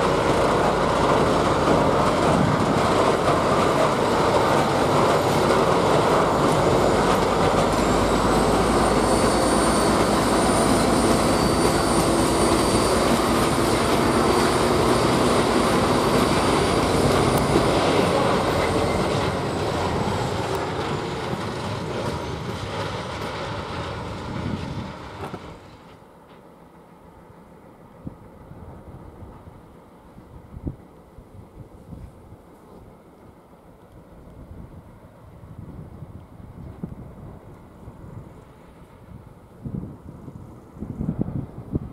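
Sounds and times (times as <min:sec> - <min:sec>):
high-pitched squeal: 0:00.0 - 0:25.9
wagons rolling over rails: 0:00.0 - 0:25.9
diesel locomotive engine: 0:00.0 - 0:41.9.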